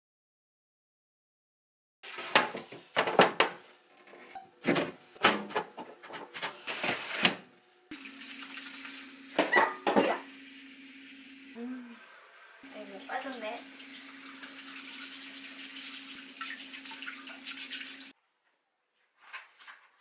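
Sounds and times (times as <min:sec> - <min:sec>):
dishes clinking and clattering: 0:09.4 - 0:10.3.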